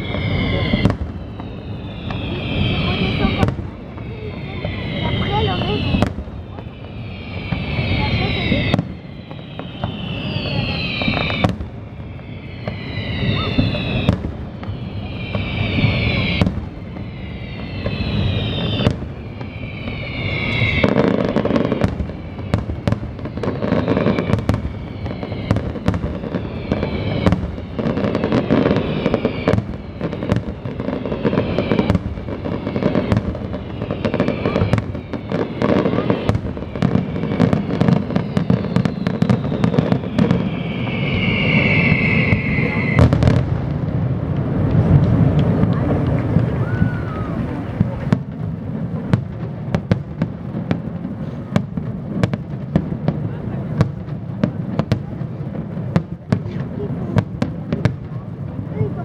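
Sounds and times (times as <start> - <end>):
falling firework whistles: 0.0 - 58.3
firework bangs and crackling: 0.0 - 59.0
firework bursts: 0.0 - 59.0.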